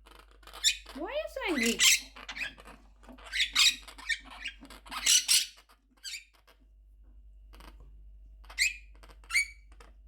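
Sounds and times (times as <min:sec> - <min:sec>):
parrot screeching: 0:00.5 - 0:02.6, 0:03.2 - 0:06.2, 0:08.6 - 0:09.6.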